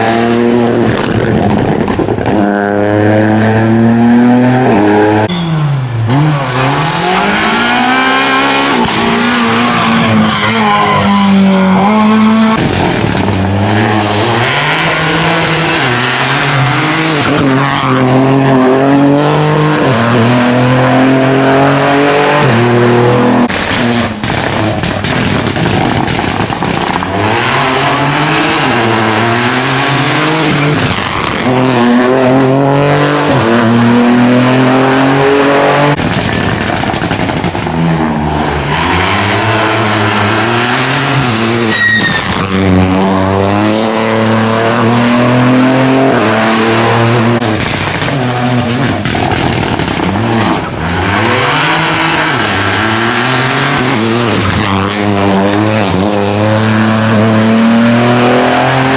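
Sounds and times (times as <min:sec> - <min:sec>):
rally car engines revving: 0:00.0 - 0:58.9
short high-pitched tone: 0:05.3 - 0:05.8.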